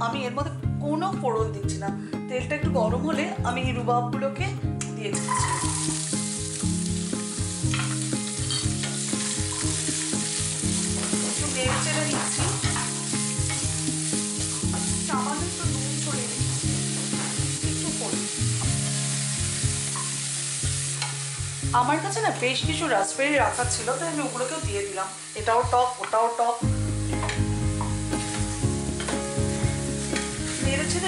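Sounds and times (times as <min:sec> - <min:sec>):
food sizzling in a pan: 0:05.2 - 0:31.0
spoon stirring in a pan: 0:07.8 - 0:10.0, 0:10.8 - 0:13.8.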